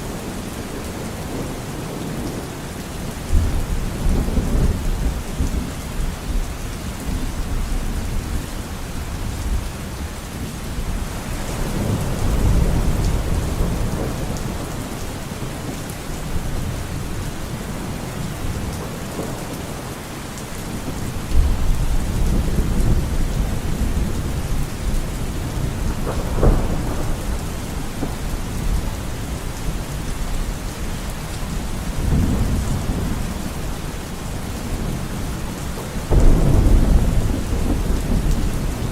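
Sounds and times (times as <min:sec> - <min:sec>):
steady rain: 0:00.0 - 0:38.9
thunder rumbling: 0:10.9 - 0:20.0, 0:20.6 - 0:38.9.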